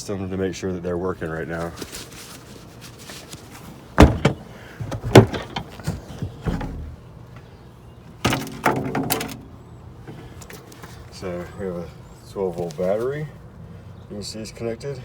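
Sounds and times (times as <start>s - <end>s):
box lid and latches handled: 4.0s - 7.0s
clattering: 4.0s - 7.1s, 8.2s - 9.6s.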